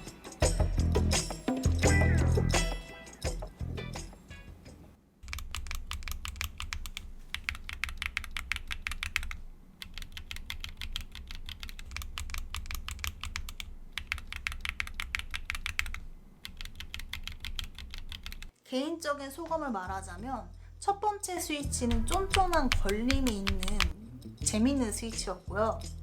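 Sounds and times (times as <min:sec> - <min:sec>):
fast typing on mechanical keyboard: 0:05.2 - 0:18.5, 0:21.9 - 0:24.0.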